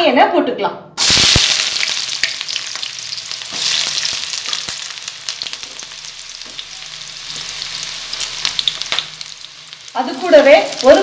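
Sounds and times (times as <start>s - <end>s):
onion sizzling in hot oil: 1.0s - 11.0s.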